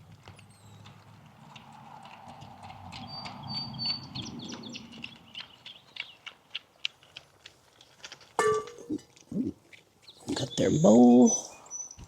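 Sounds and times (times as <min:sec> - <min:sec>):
small birds chirping: 0:00.3 - 0:01.6, 0:02.9 - 0:07.2, 0:08.5 - 0:12.0.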